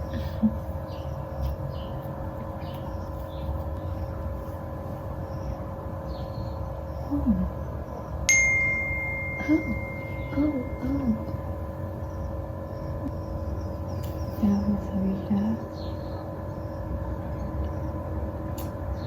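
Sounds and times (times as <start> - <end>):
steady electrical hum: 0.0 - 19.0
sharp metallic ding: 8.3 - 11.2.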